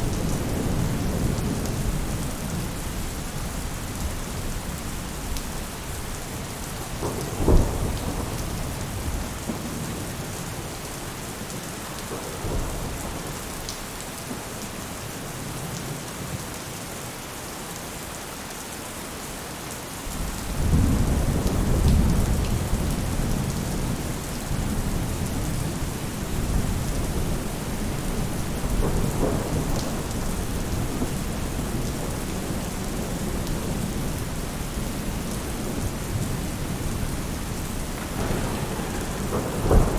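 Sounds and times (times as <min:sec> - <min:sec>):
low rolling thunder rumble: 0:00.0 - 0:13.7, 0:20.1 - 0:39.9
rain falling on a roof: 0:00.0 - 0:39.9
sharp thunder clap: 0:38.0 - 0:39.9.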